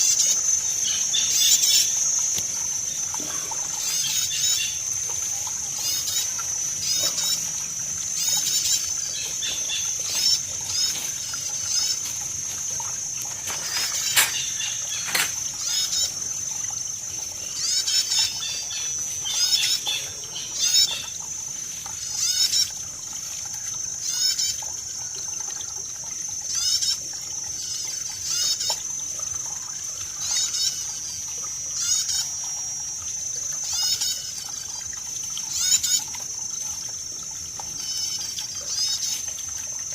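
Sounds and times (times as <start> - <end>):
high-pitched whine: 0.0 - 16.2
water trickling: 0.0 - 39.9
bird chirping: 2.9 - 4.9, 13.4 - 16.2.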